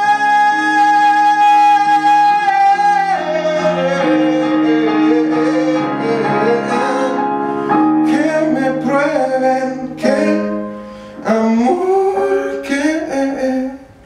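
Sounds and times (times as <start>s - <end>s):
person singing: 0.0s - 14.0s
piano chords: 0.0s - 14.0s.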